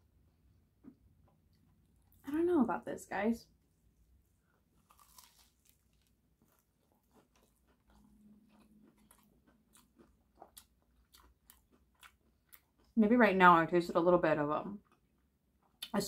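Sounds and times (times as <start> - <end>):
chewing toasted sandwich: 4.2 - 13.0.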